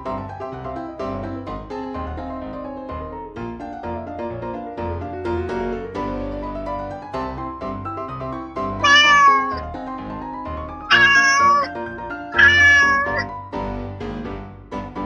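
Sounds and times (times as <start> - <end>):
cat meowing: 8.8 - 9.6, 10.9 - 11.8, 12.4 - 13.3.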